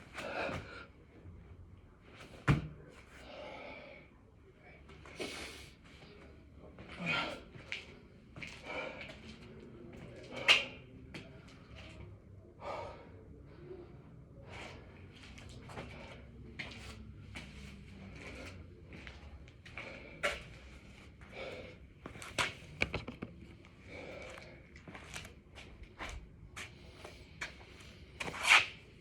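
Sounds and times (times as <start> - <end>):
man breathing hard: 3.2 - 4.1, 12.6 - 15.0, 19.7 - 21.9.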